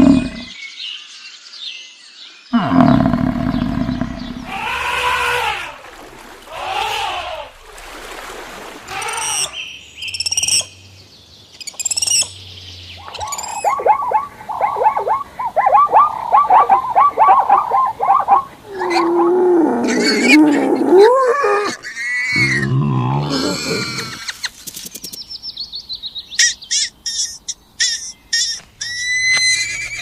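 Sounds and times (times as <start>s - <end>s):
low wavering animal call: 0.0s - 0.5s, 2.6s - 5.8s, 13.0s - 24.2s
fast repeated animal calls: 2.6s - 5.7s, 13.1s - 18.5s
short high animal calls: 3.8s - 5.7s.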